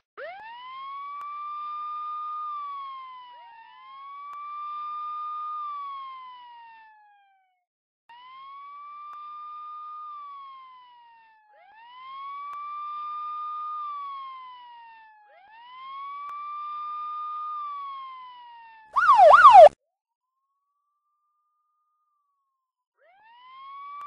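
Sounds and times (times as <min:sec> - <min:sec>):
police siren wailing: 0:19.0 - 0:19.7
siren rapid yelps: 0:19.0 - 0:19.7.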